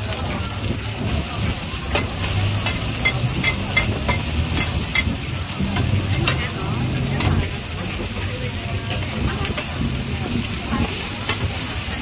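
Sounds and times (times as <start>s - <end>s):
omelettes sizzling in hot oil: 0.0s - 12.0s
metal spatulas scraping a pan: 1.9s - 7.6s.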